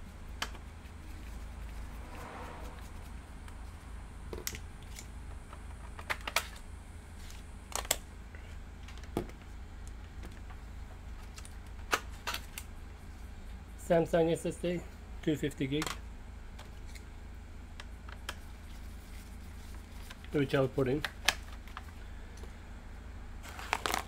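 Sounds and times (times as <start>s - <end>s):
steady low hum: 0.0s - 24.0s
plastic laptop parts clicking: 4.4s - 6.6s.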